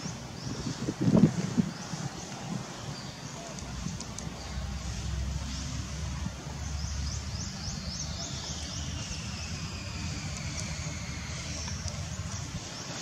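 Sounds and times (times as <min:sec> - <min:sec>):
bird chirping: 0:06.5 - 0:13.0.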